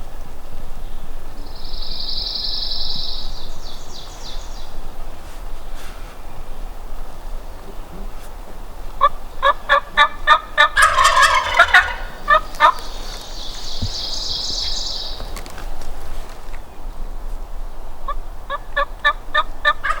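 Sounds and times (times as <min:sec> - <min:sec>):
turkey yelps: 0:09.0 - 0:13.2, 0:18.5 - 0:20.0
turkey gobbling: 0:09.0 - 0:14.4, 0:18.5 - 0:20.0.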